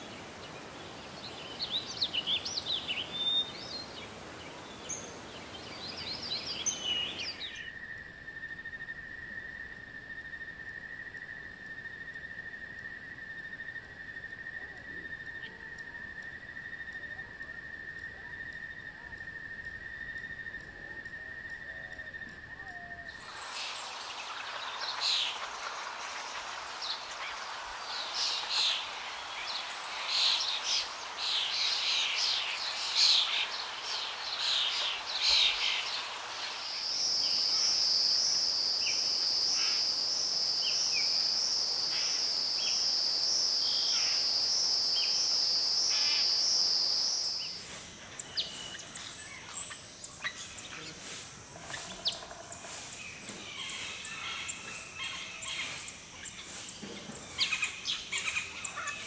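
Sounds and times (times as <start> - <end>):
birds chirping and calling: 0.0 - 7.7, 23.1 - 42.9, 45.9 - 59.0
high wavering insect trill: 23.1 - 59.0.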